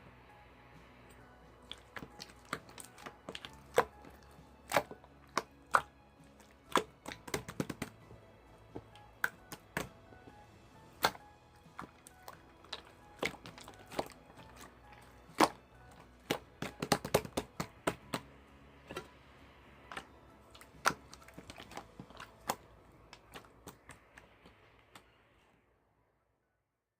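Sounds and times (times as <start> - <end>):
faint background music: 0.0 - 26.9
sharp clicks and taps: 1.1 - 10.0, 11.8 - 18.3.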